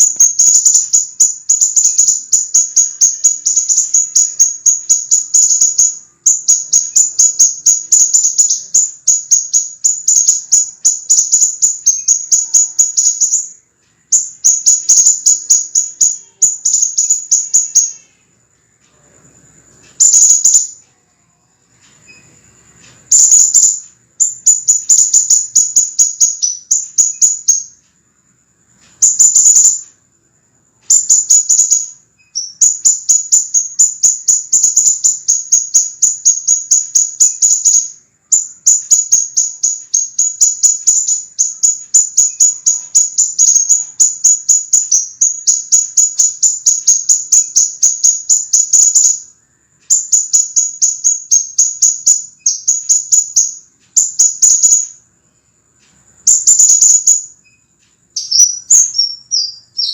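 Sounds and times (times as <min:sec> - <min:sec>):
bird high sharp chirps: 0:00.0 - 0:27.8, 0:28.7 - 0:59.9.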